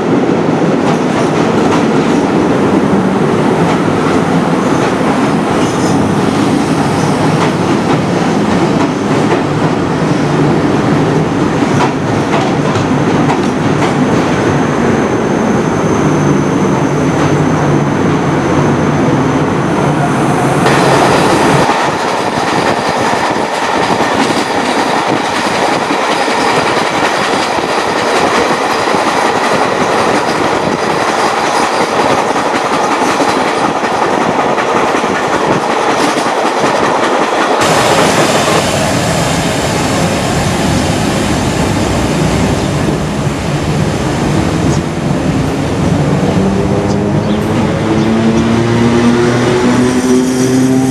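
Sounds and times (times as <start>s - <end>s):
train wheels clacking on rails: 0.0s - 14.5s, 20.3s - 43.2s
rising whine: 37.6s - 44.7s.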